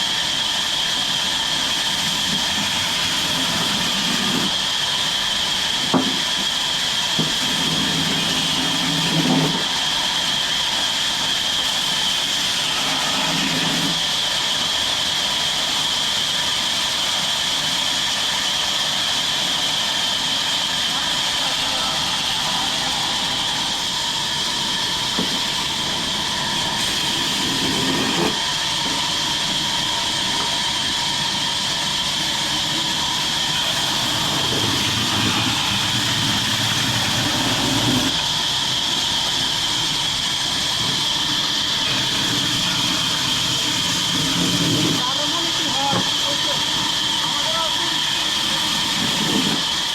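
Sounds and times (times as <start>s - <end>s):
chainsaw cutting a tree: 0.9s - 4.6s, 21.0s - 38.2s, 40.7s - 45.2s.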